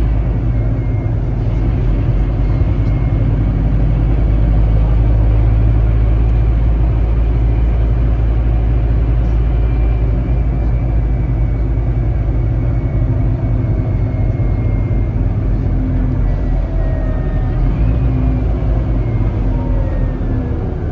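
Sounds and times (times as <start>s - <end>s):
bus engine low rumble: 0.0s - 20.9s.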